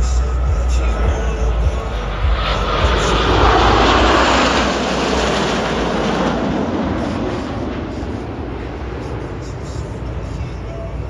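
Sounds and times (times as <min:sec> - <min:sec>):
jet flying past: 0:00.3 - 0:11.0.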